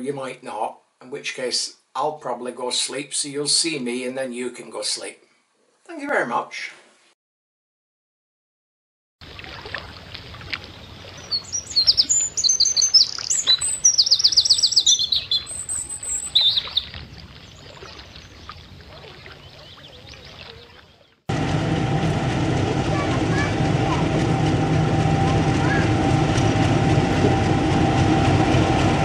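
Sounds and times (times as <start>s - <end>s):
faint outdoor hiss: 0.0s - 7.1s
songbird singing trills: 10.4s - 21.2s
loud steady noise: 21.3s - 29.0s.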